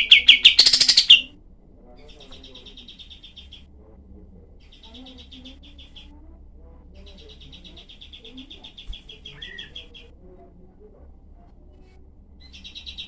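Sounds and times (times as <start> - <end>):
bird singing fast trills: 0.0 - 1.3, 2.5 - 3.7, 7.0 - 10.1, 12.4 - 13.0
soft low bird chirps: 0.0 - 1.4, 2.0 - 3.8, 7.0 - 10.1.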